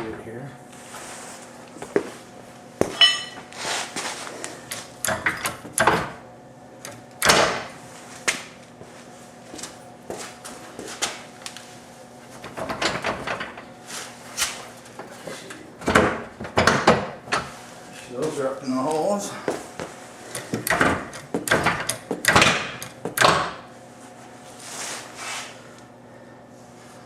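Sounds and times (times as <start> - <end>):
ringing metallic clink: 3.0 - 3.4.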